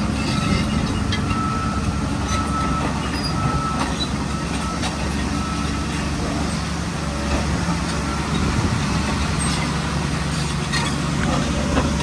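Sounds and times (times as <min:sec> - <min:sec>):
diesel engine running under load: 0:00.0 - 0:12.0
high squeal of tracks: 0:00.0 - 0:12.0.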